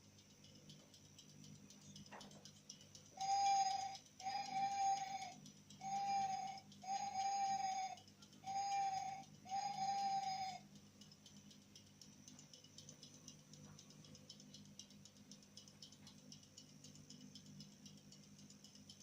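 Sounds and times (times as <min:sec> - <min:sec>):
faint crackling and ticking: 0:00.0 - 0:19.0
whistle-like tone: 0:03.1 - 0:10.6.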